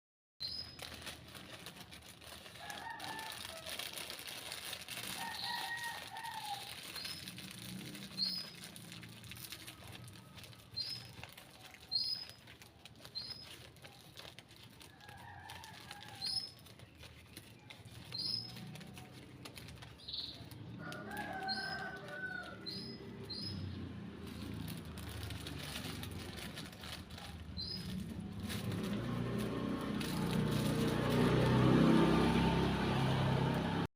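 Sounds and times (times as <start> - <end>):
small birds chirping: 0.4 - 1.1, 5.2 - 14.8, 15.9 - 28.9.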